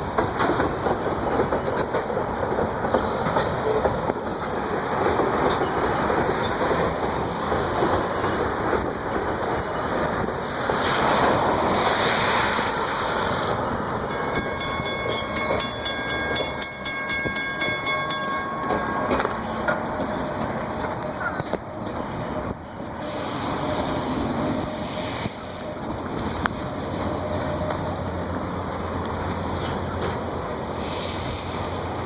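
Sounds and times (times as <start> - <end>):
freight train wheels rumbling: 0.0 - 32.0
high ringing tone with ticking: 14.1 - 19.5.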